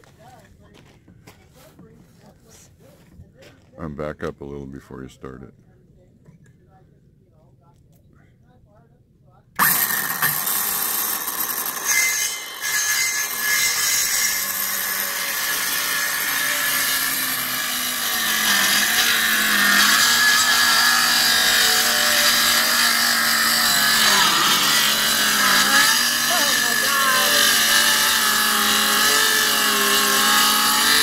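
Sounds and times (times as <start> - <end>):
power saw cutting wood: 9.6 - 31.0.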